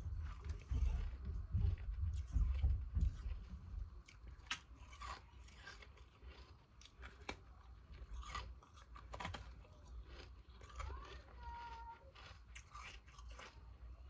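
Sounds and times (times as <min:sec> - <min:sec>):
ice crunching between teeth: 0:04.1 - 0:13.8.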